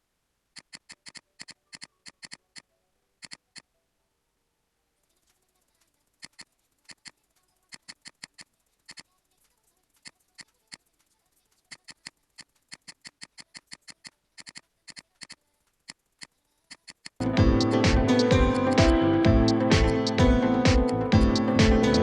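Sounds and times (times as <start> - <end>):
computer mouse clicking: 0.6 - 3.7, 5.1 - 17.2.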